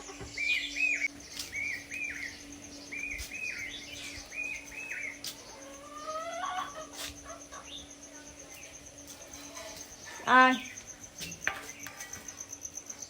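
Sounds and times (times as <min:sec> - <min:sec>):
rising bird calls: 0:00.0 - 0:08.0.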